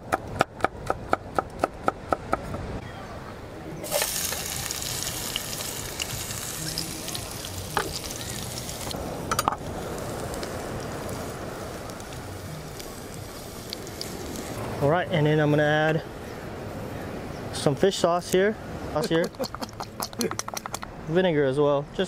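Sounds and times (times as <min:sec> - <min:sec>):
garlic sizzling in hot oil: 0:03.8 - 0:14.6.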